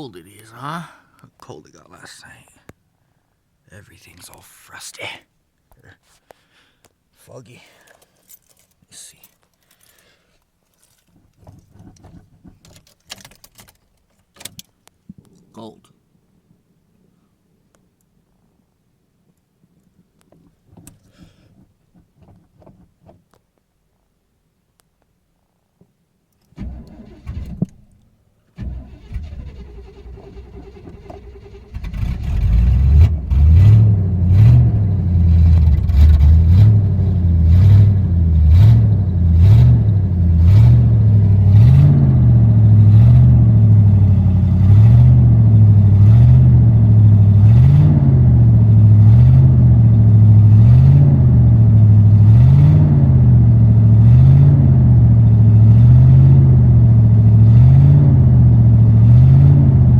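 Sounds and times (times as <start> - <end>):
engine starting and idling: 26.5 - 28.0, 28.6 - 34.6.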